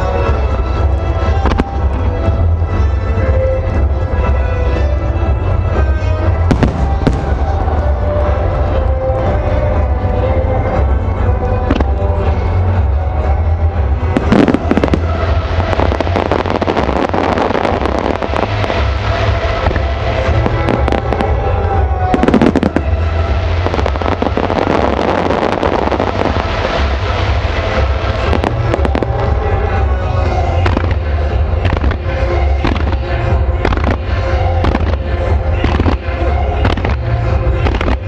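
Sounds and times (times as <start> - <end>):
fireworks bursting and crackling: 0.0 - 4.4, 5.2 - 38.0
music playing: 0.0 - 38.0
heavy firework booms: 6.5 - 7.6.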